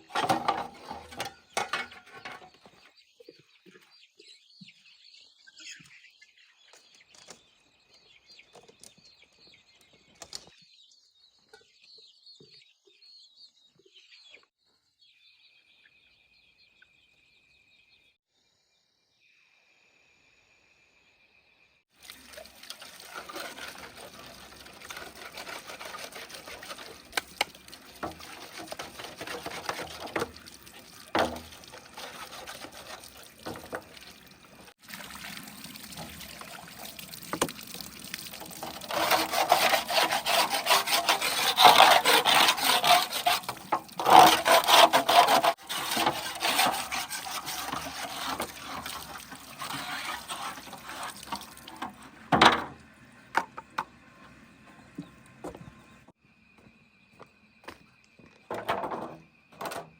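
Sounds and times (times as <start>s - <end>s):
wet cement scraping and sloshing: 0.0s - 2.6s, 22.0s - 52.8s.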